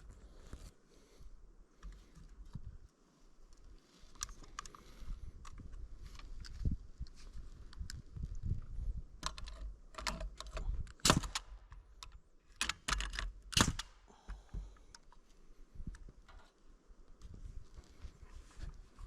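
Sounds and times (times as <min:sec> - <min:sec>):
sharp clicks and knocks: 0:09.2 - 0:15.2.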